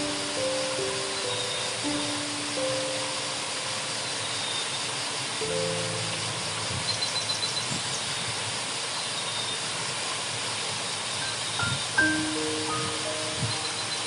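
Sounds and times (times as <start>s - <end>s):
music notes: 0.0s - 3.9s, 11.6s - 14.0s
waterfall roaring: 0.0s - 14.0s.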